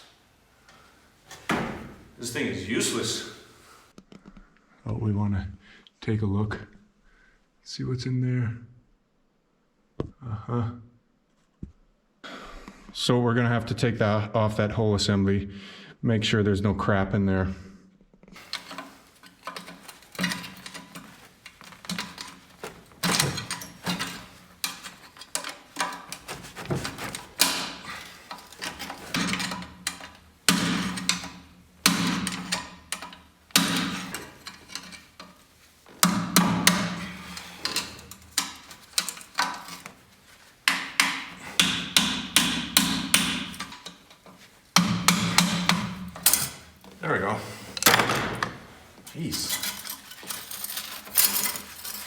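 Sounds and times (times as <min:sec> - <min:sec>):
hammer striking metal: 0:40.7 - 0:43.8.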